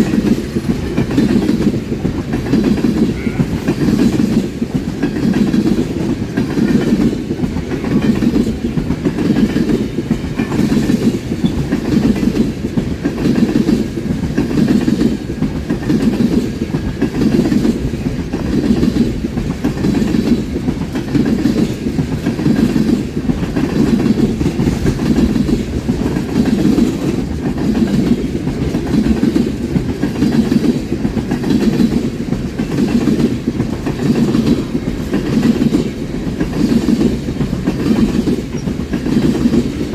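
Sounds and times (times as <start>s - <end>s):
train wheels rumbling on rail: 0.0s - 39.9s
wheels clacking over rail joints: 0.0s - 39.9s.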